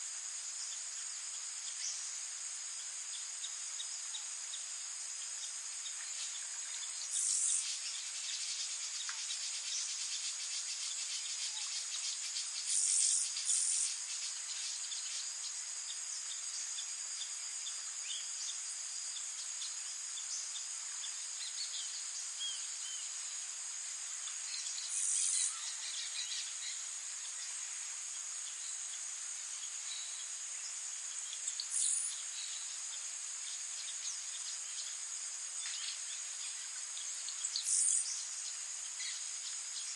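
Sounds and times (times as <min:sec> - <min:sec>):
insects chirring: 0:00.0 - 0:39.9
faint bird chirps: 0:05.3 - 0:23.2, 0:24.3 - 0:27.6, 0:29.6 - 0:35.0, 0:35.6 - 0:39.9.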